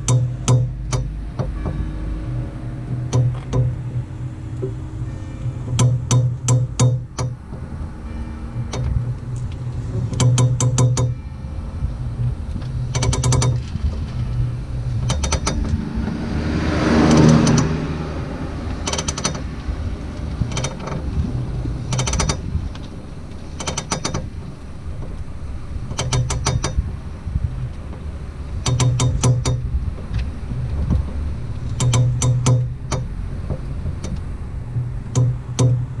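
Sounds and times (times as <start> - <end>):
car axle joint clicking: 0.0 - 1.9, 2.9 - 11.2, 11.9 - 36.0
rushing noise: 0.0 - 28.7
low car hum: 0.0 - 36.0.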